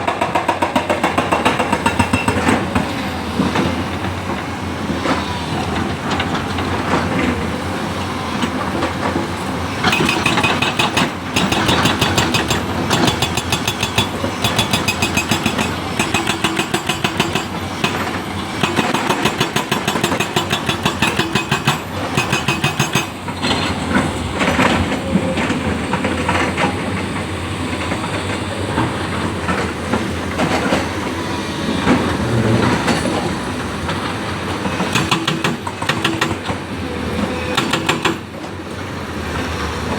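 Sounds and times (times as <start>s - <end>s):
excavator running under load: 0.0s - 39.9s
rapid metallic clatter: 9.8s - 23.7s.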